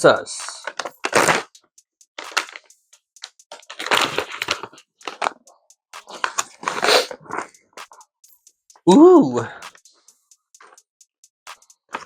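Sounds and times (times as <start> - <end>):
snack bag crinkling: 2.2 - 2.7, 3.5 - 5.4, 6.0 - 7.5.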